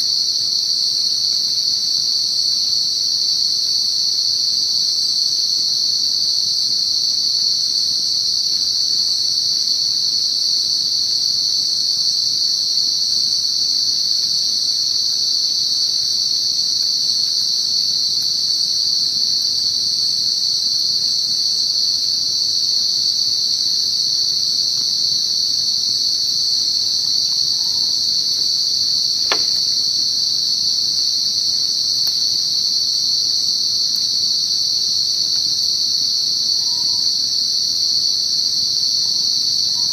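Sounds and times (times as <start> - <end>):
night insects droning: 0.0 - 39.9
sharp click: 29.2 - 29.8.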